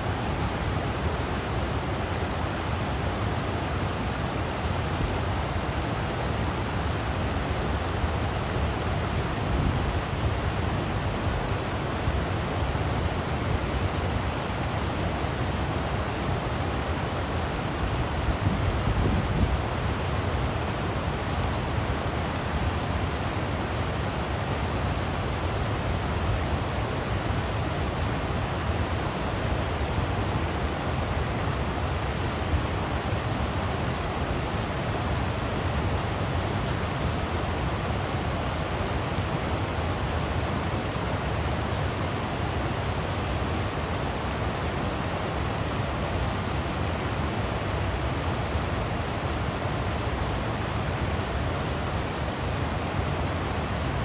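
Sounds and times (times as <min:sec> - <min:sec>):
stream water rushing over rocks: 0:00.0 - 0:54.0.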